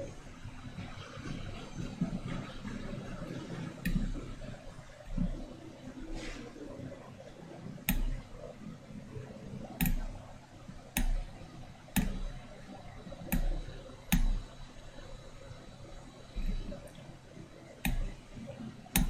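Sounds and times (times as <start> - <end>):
sharp clicks with low thumps: 13.2 - 14.6.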